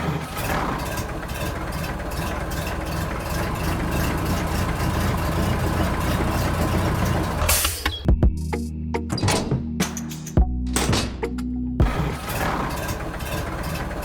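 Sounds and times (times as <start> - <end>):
engine humming steadily: 0.0 - 7.6, 10.8 - 14.0.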